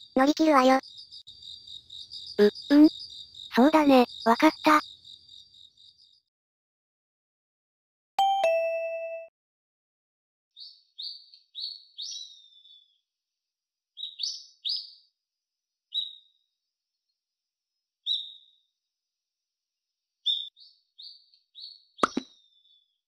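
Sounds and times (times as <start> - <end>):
small bird chirping: 0.0 - 6.3, 10.6 - 13.1, 13.9 - 15.2, 15.8 - 16.6, 18.0 - 18.8, 20.1 - 23.0.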